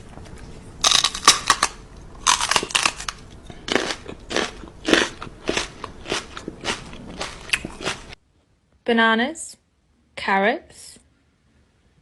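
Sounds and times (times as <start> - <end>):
pet chewing crunchy food: 0.0 - 8.2.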